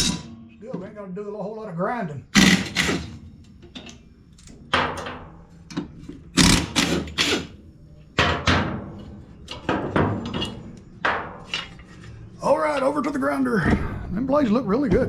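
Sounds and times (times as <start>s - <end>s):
steel parts clanking: 8.2s - 13.0s.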